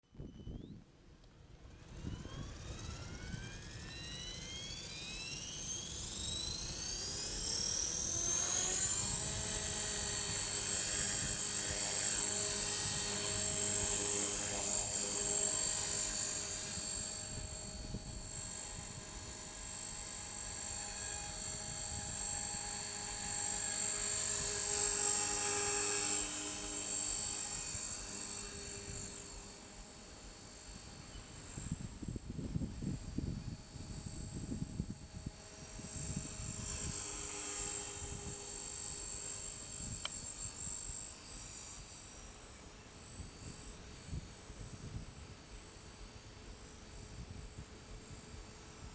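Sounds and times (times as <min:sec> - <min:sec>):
rc helicopter motor whine: 0:00.1 - 0:48.9
wind on microphone: 0:08.2 - 0:23.7, 0:30.9 - 0:40.8.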